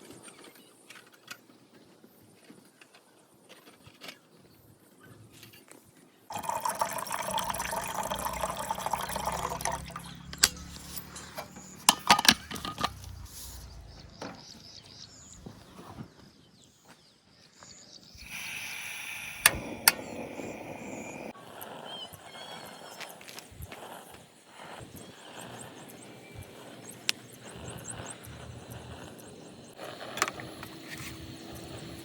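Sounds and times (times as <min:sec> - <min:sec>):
water pouring into container: 0:06.3 - 0:10.2
utensils clinking and knocking: 0:10.4 - 0:13.2.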